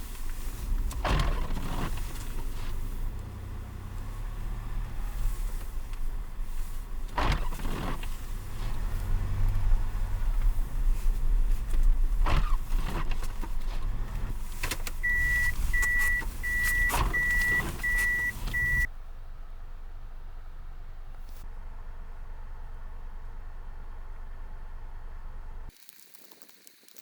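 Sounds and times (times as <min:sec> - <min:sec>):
vehicle engine rumbling: 0:00.0 - 0:25.7
thuds: 0:10.4 - 0:18.9
high beeps: 0:15.0 - 0:18.9.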